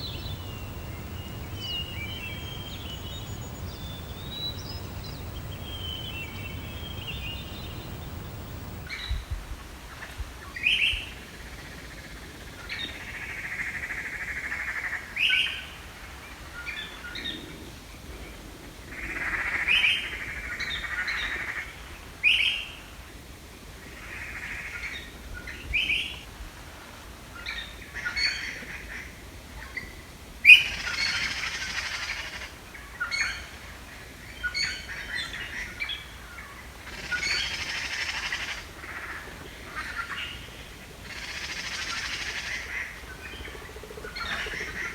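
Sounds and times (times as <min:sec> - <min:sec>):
songbirds singing and calling: 0:00.0 - 0:08.9.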